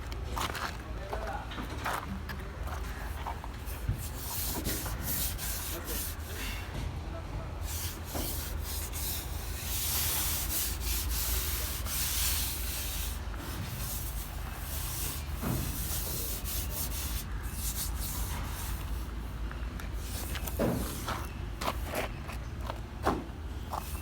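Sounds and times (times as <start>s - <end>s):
sanding car body panel: 3.6s - 6.4s, 7.6s - 19.2s, 20.0s - 21.3s.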